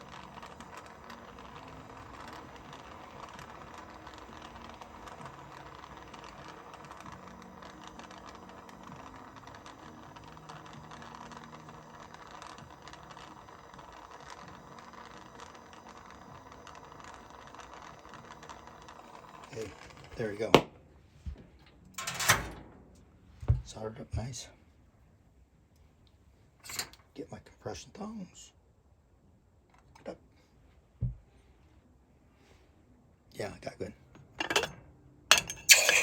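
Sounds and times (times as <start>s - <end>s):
torch flame hissing: 0.0s - 20.6s, 35.6s - 36.0s.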